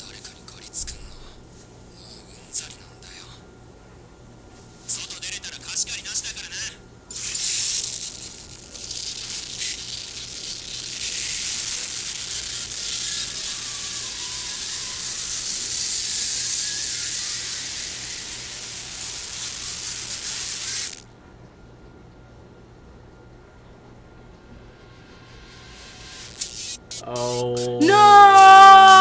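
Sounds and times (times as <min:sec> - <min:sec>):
loud steady hissing: 0:07.1 - 0:21.1, 0:24.5 - 0:29.0.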